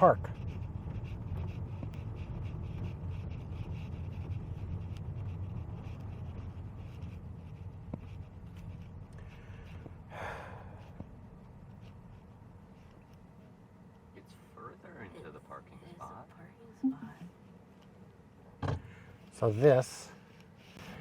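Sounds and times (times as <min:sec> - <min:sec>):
road and tyre rumble in car: 0:00.0 - 0:16.7.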